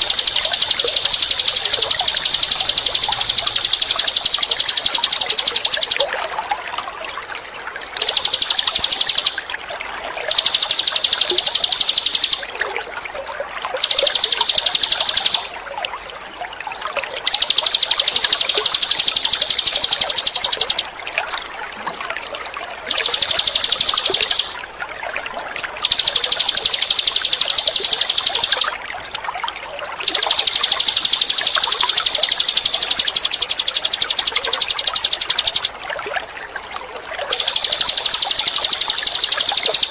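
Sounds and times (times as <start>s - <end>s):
bird buzzy trills: 0.0s - 6.2s, 8.0s - 9.6s, 10.2s - 12.6s, 13.8s - 15.6s, 17.2s - 21.0s, 22.9s - 24.7s, 25.8s - 28.8s, 30.0s - 35.8s, 37.3s - 39.9s
water trickling: 0.0s - 39.9s.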